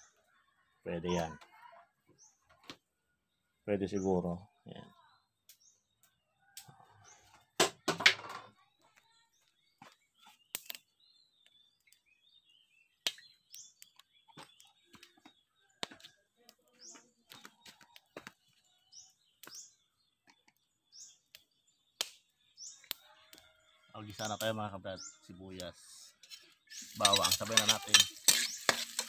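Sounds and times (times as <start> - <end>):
small bird chirping: 8.6 - 29.0.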